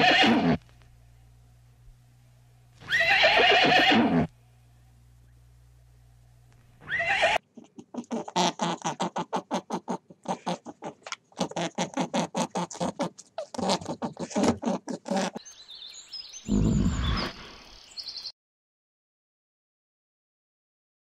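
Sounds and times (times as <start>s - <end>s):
rabbit grunting: 6.8s - 15.4s.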